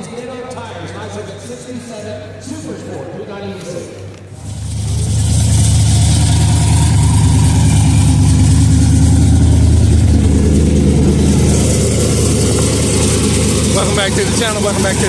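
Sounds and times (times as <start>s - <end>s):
car engine idling loudly: 4.4s - 15.0s.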